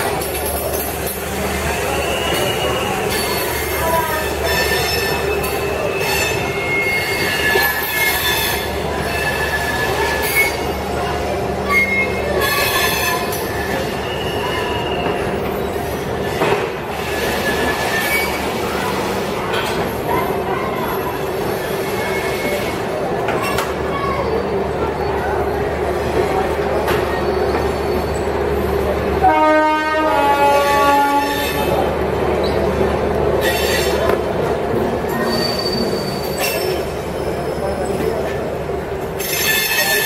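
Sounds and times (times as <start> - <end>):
train wheels rumbling on rails: 0.0 - 40.0
high wheel squeals: 1.6 - 10.9, 11.6 - 18.6, 35.1 - 38.1, 39.2 - 40.0.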